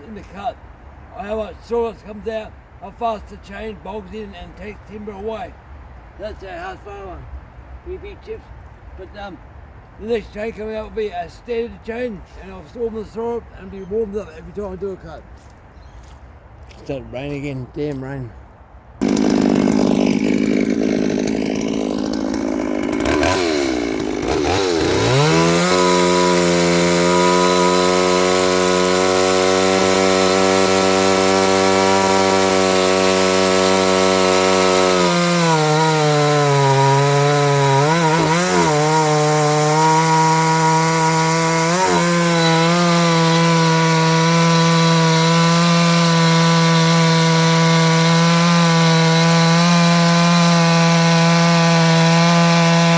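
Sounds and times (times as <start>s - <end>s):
chainsaw revving and cutting wood: 19.0s - 52.9s.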